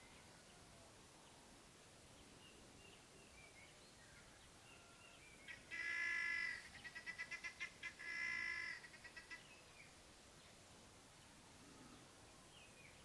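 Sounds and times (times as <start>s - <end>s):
bird calling: 5.5s - 9.9s.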